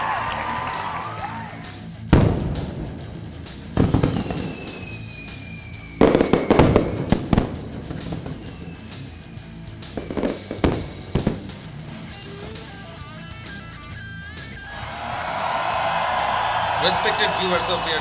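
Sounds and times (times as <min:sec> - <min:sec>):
music: 0:00.0 - 0:18.0
fireworks bursting and crackling: 0:02.1 - 0:11.8
firework whistle: 0:03.8 - 0:11.3.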